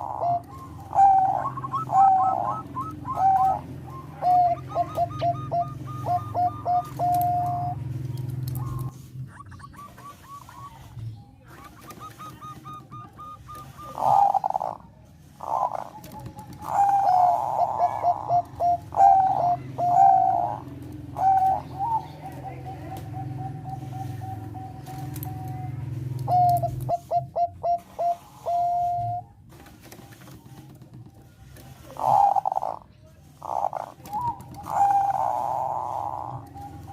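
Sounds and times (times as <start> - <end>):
dove cooing: 0.0 - 29.4, 31.6 - 36.9.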